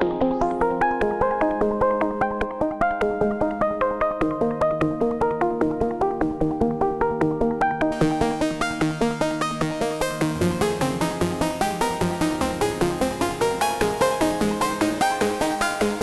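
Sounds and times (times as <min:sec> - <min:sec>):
synthesizer repeating notes: 0:07.9 - 0:16.0
synthesizer bass part: 0:08.0 - 0:16.0.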